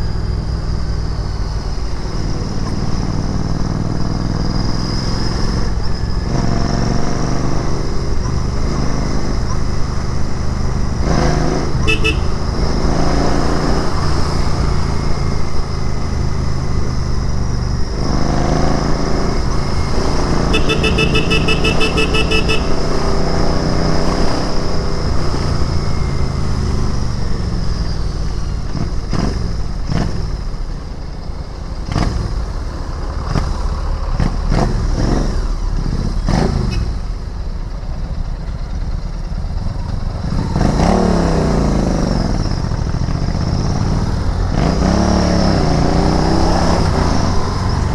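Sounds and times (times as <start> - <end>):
motorcycle engine revving: 0.2 - 31.1, 31.8 - 37.4, 38.0 - 47.9
vehicle horn beeping: 11.7 - 12.8, 20.3 - 23.3.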